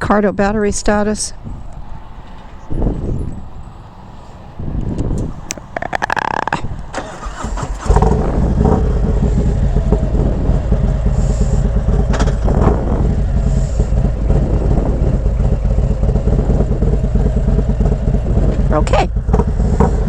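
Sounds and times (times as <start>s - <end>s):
motorcycle engine rumbling: 0.0s - 20.0s.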